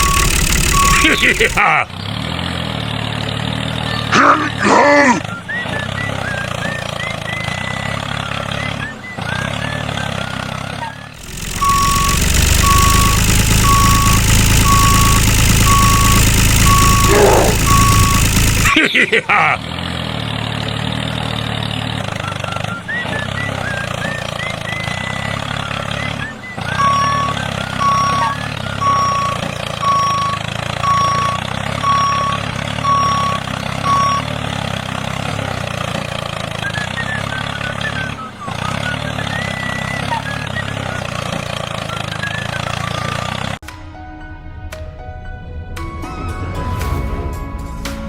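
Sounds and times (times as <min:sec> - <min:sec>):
reversing alarm beeping: 0:00.0 - 0:01.6, 0:11.2 - 0:18.9, 0:22.2 - 0:35.0
vehicle engine running: 0:00.0 - 0:43.6.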